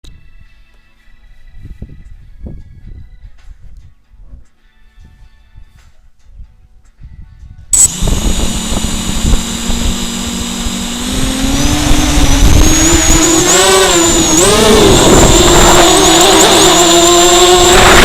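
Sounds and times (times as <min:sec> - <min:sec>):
quadcopter motors whining: 0:07.8 - 0:18.0.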